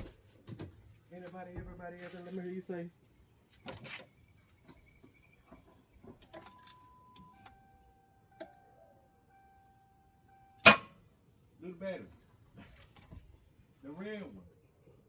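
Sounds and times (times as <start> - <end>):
electronic beep tones: 6.2 - 10.7.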